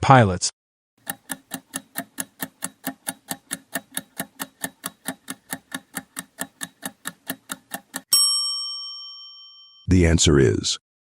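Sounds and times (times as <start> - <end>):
countdown timer ticking: 1.0 - 8.1.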